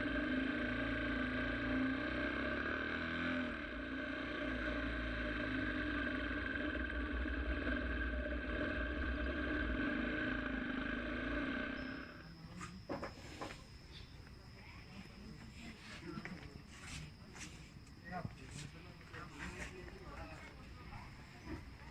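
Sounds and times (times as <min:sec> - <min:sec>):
motorcycle engine running: 0:00.0 - 0:12.3.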